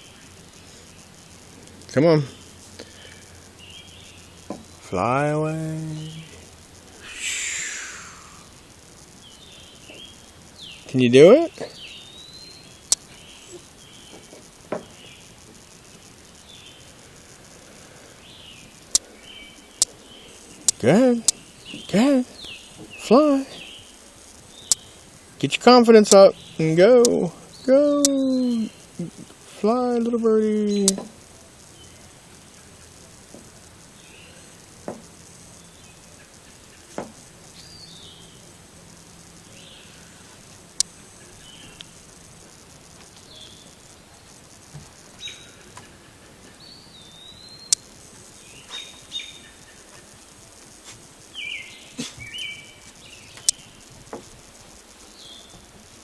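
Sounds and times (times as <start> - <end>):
low hiss: 0.0 - 56.0
faint high chirps: 7.0 - 8.6
faint high-pitched chirping: 7.0 - 42.2, 43.2 - 56.0.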